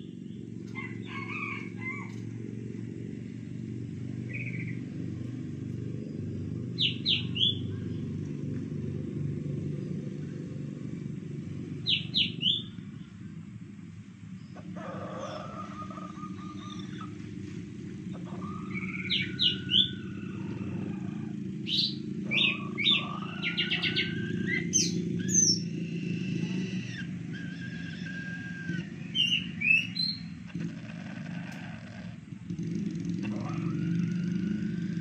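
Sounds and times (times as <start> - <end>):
steady low hum: 0.0 - 35.0
small birds chirping and whistling: 4.0 - 8.6, 9.2 - 13.2, 14.3 - 35.0.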